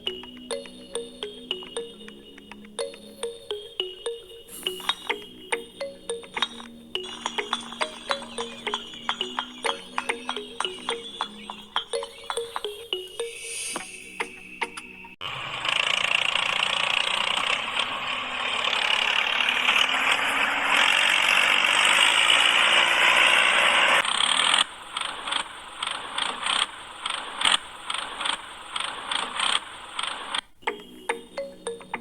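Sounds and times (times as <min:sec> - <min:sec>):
small motor whirring: 0:15.2 - 0:30.4.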